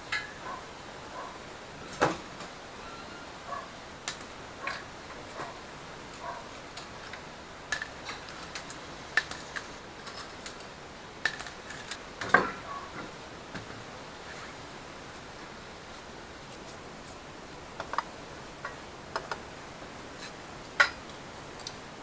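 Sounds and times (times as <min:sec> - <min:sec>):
metal hand tools clinking: 0:07.0 - 0:12.0.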